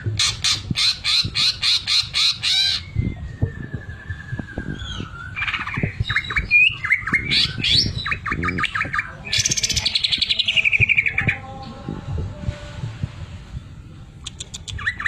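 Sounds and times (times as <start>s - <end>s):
bird singing whistles and chirps: 0.2s - 11.4s, 14.5s - 15.0s.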